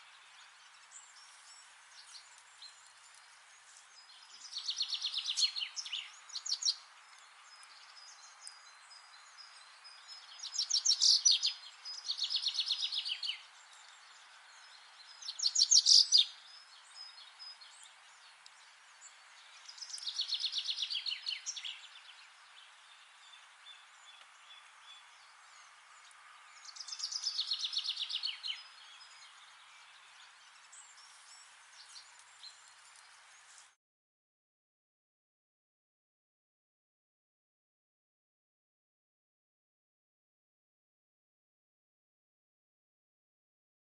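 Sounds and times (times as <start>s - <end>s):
faint outdoor hiss: 0.0s - 33.8s
songbird singing: 0.0s - 33.8s.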